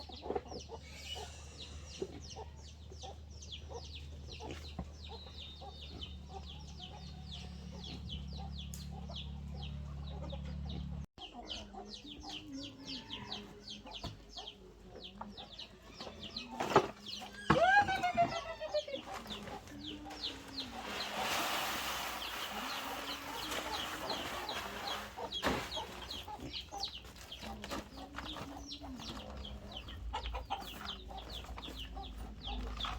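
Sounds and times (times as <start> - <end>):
chickens clucking: 0.0 - 32.9
loud chicken call: 17.5 - 19.0.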